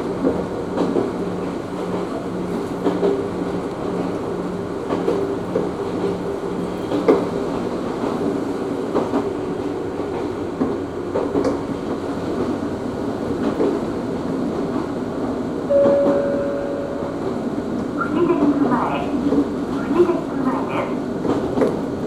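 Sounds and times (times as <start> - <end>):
train rumbling: 0.0 - 22.0
short steady tone: 15.7 - 17.5.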